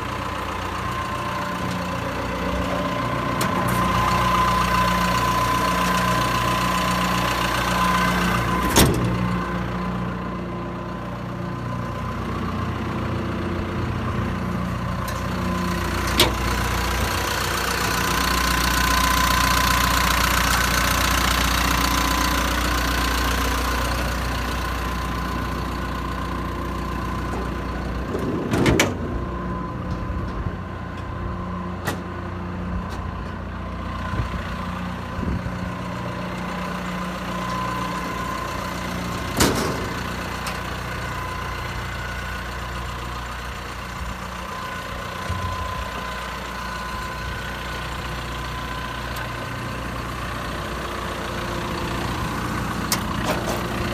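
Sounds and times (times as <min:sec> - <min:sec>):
excavator diesel engine idling: 0:00.0 - 0:53.9.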